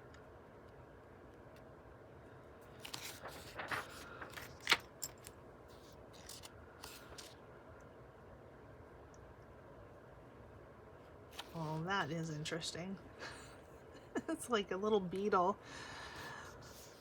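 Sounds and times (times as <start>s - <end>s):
book pages turning: 2.6s - 7.4s, 11.3s - 11.9s.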